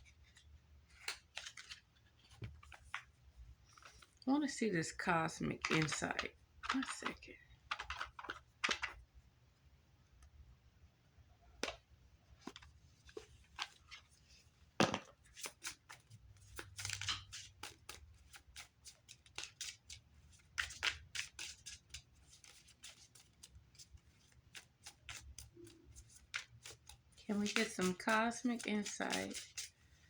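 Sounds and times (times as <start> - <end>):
cards being shuffled: 0.2 - 3.1, 5.5 - 9.0, 14.8 - 29.8.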